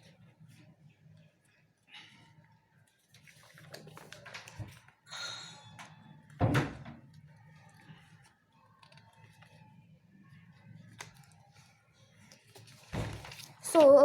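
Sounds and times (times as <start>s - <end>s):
paper being folded: 3.0s - 5.0s, 7.6s - 9.7s, 10.4s - 14.0s.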